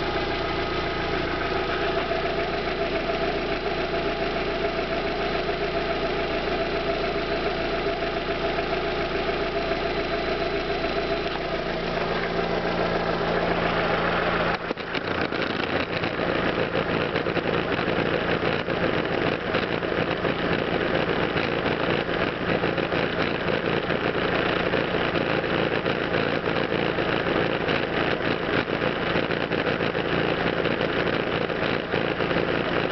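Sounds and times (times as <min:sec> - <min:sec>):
car engine idling: 0:00.0 - 0:32.9
fine rapid ticking: 0:14.5 - 0:32.9.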